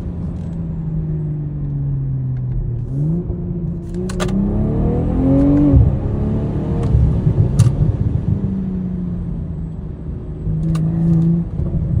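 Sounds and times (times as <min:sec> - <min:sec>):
car engine exhaust rumble: 0:00.0 - 0:12.0.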